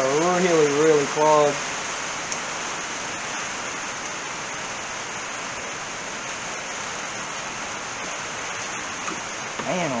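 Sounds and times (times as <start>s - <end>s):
heavy rain hissing: 0.0s - 10.0s.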